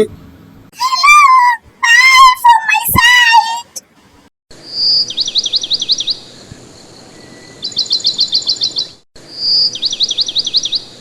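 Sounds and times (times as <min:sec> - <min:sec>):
bird whistling and chirping: 0:07.1 - 0:10.8.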